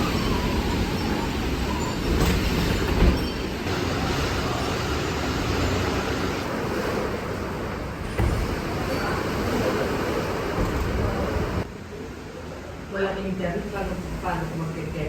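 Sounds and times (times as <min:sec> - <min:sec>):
heavy rain with wind: 0:03.6 - 0:15.0.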